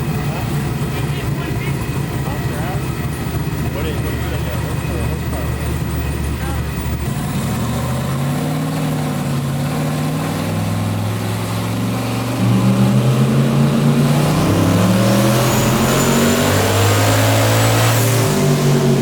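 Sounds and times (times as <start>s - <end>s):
engine running under load: 0.0s - 19.0s
high turbo whine: 0.0s - 19.0s.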